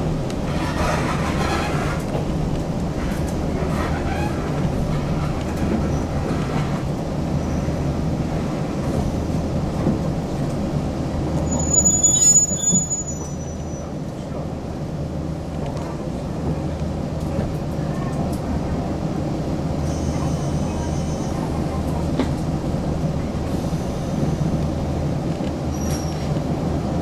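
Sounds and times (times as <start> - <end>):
train rumbling from inside: 0.0 - 27.0
high-pitched brake squeal: 11.4 - 13.9, 19.9 - 21.4, 25.7 - 26.3.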